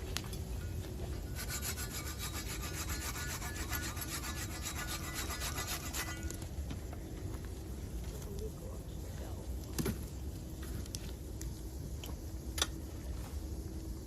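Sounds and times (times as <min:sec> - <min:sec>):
steady low rumble: 0:00.0 - 0:14.0
rhythmic rasping scrape: 0:01.2 - 0:06.4.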